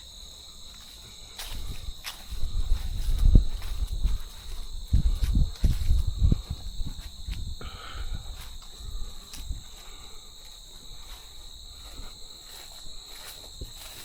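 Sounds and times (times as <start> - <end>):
crickets trilling: 0.0 - 14.0
soft low thumps: 1.4 - 9.8.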